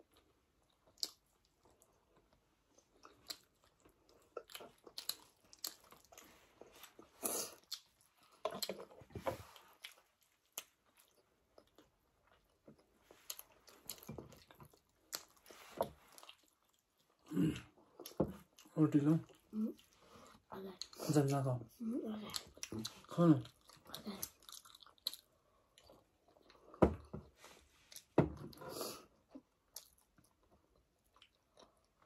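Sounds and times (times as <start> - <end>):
people chewing and smacking: 0.0 - 32.0.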